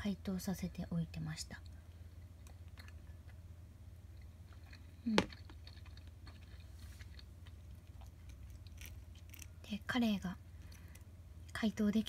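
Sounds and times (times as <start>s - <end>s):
person chewing quietly: 1.6s - 9.6s.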